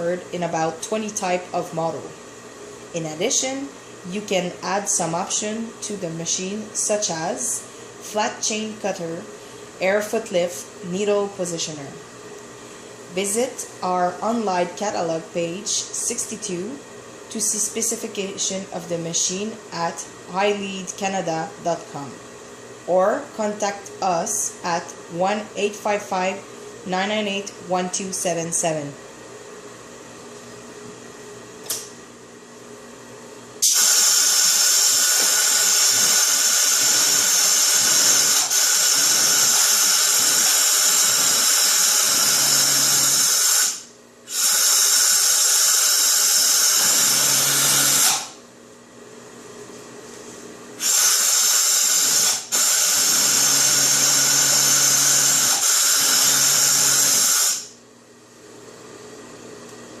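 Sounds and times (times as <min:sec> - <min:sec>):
overlock sewing machine whirring: 0:33.7 - 0:48.3, 0:50.8 - 0:57.6.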